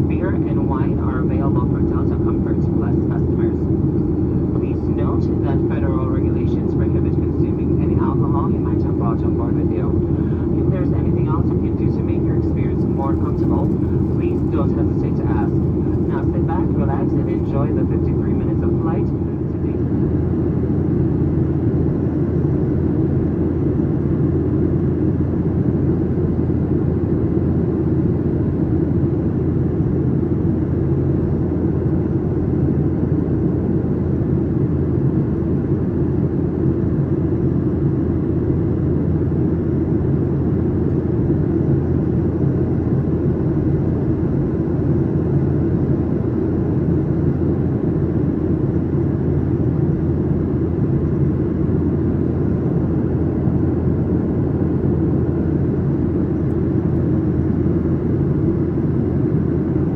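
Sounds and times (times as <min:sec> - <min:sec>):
airflow over fuselage: 0:00.0 - 0:30.1
airplane cabin engine rumble: 0:00.0 - 0:59.9.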